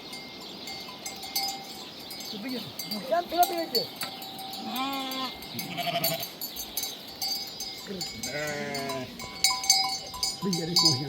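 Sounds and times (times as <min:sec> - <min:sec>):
livestock bells clinking: 0:00.0 - 0:11.0
animals bleating: 0:02.8 - 0:06.4, 0:07.9 - 0:09.5.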